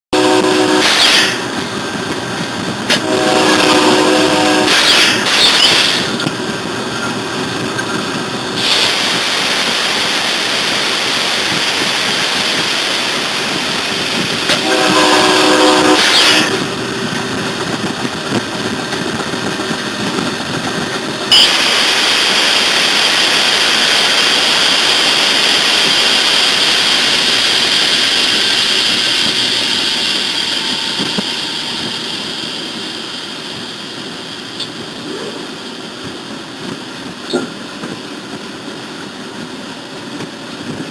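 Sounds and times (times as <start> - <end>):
train horn blast: 0.1 - 1.5, 2.9 - 5.3, 14.5 - 16.7
train running: 0.1 - 40.9
steady high-pitched noise: 21.3 - 35.9.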